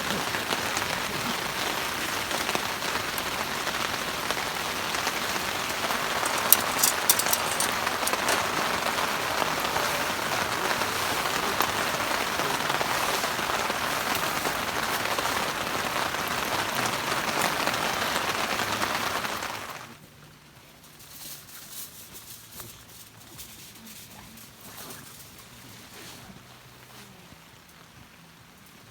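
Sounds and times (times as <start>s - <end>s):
heavy rain falling: 0.0s - 19.9s.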